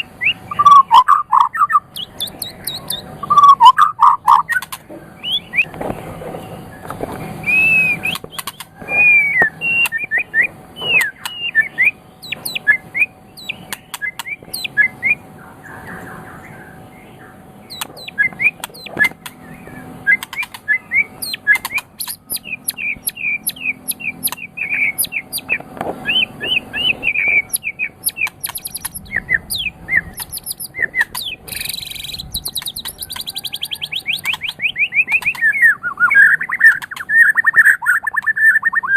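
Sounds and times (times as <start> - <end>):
songbird whistling song: 0.0 - 38.9.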